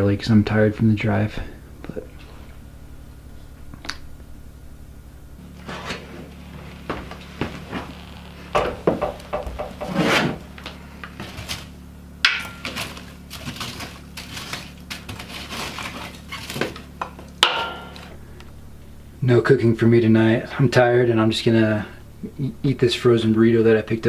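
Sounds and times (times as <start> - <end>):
steady low hum: 0.0 - 24.0
objects knocking on wood: 8.6 - 10.0.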